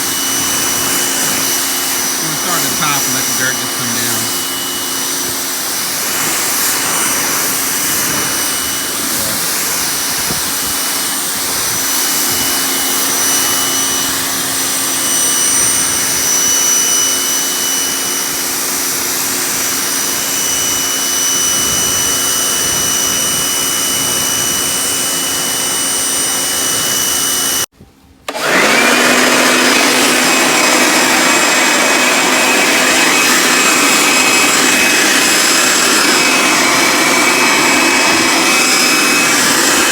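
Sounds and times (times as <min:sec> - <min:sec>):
electric motor whining: 0:00.0 - 0:18.8, 0:28.3 - 0:39.9
motor spinning up: 0:00.0 - 0:19.0, 0:28.3 - 0:39.9.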